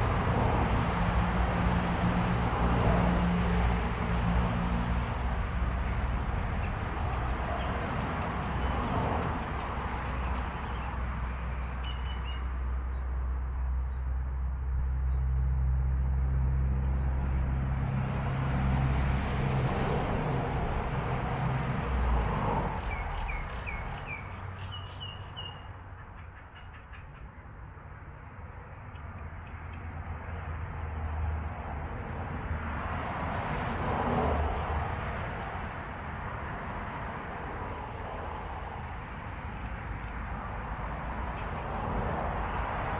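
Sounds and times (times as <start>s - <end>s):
small birds chirping: 22.8s - 27.5s.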